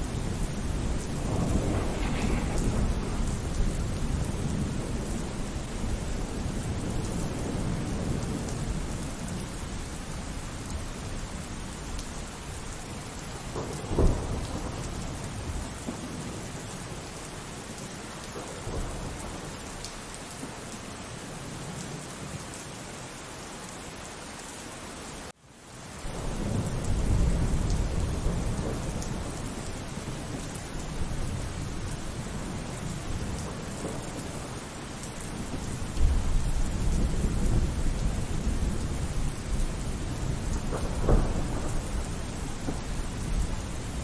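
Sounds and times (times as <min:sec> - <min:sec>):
sharp crack of thunder: 0:00.0 - 0:09.5, 0:13.4 - 0:16.4, 0:26.1 - 0:34.6, 0:35.2 - 0:44.0
deep roll of thunder: 0:00.0 - 0:09.8, 0:13.4 - 0:16.4, 0:26.1 - 0:44.0
steady rain: 0:00.0 - 0:44.0.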